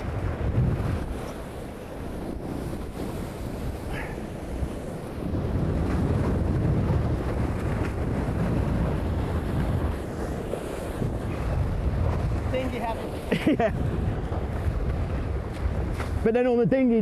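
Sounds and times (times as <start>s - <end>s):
water rushing past hulls: 0.0s - 17.0s
wind buffeting microphone: 0.0s - 17.0s.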